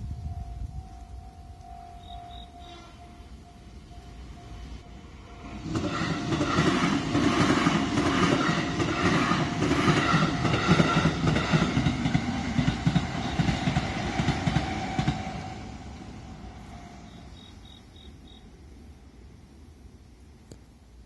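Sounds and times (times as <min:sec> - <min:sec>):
steady crossing tone: 0:00.0 - 0:07.0
electric train passing: 0:00.0 - 0:21.0
wheels clacking over rail joints: 0:05.6 - 0:15.6.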